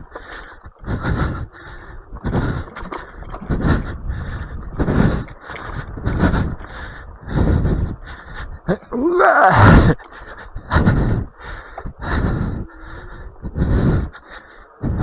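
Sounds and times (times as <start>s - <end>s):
person breathing hard: 0.0s - 15.0s
person groaning: 8.7s - 10.0s.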